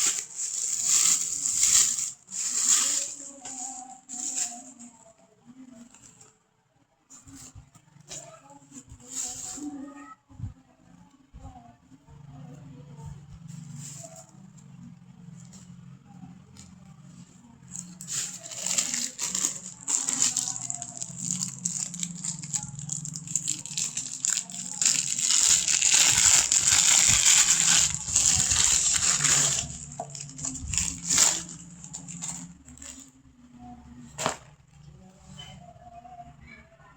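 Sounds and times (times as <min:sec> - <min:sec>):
packaging rustling and crinkling: 0:00.0 - 0:04.9, 0:17.7 - 0:33.1.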